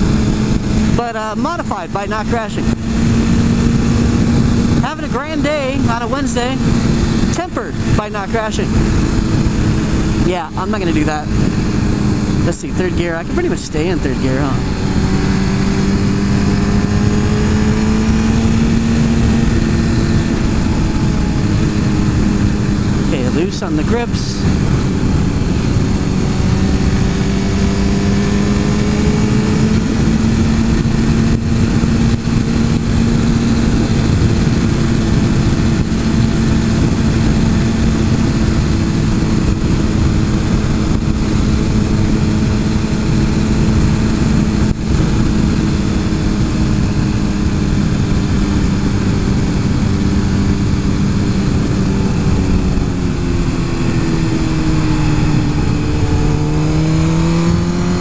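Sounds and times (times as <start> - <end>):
heavy wind rush: 0.0 - 58.0
motorcycle engine running: 0.0 - 58.0.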